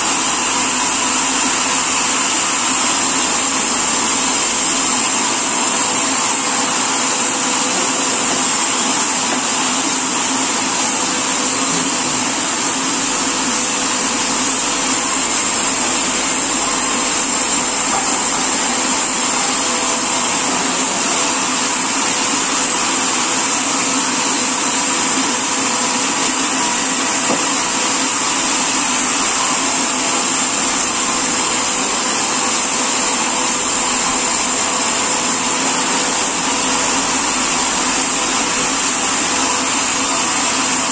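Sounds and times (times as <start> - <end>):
high machine whine: 0.0 - 40.9
sawmill machinery running: 0.0 - 40.9.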